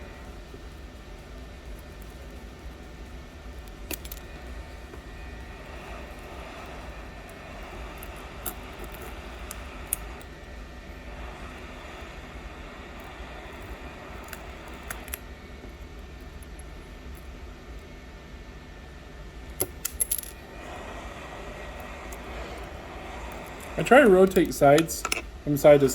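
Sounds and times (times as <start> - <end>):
steady background hum: 0.0 - 25.9.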